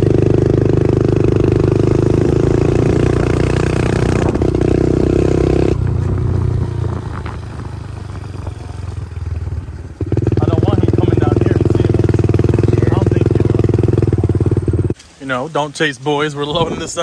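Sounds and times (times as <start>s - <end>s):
small motorbike engine running: 0.0s - 15.0s.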